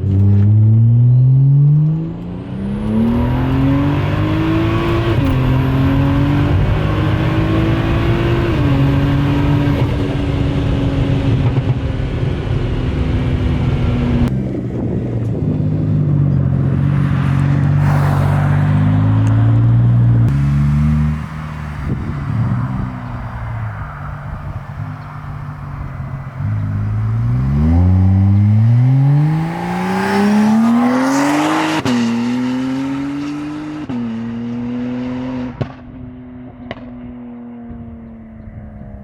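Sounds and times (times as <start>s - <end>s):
car engine accelerating: 0.0s - 35.9s
turbo rushing whoosh: 17.2s - 32.2s.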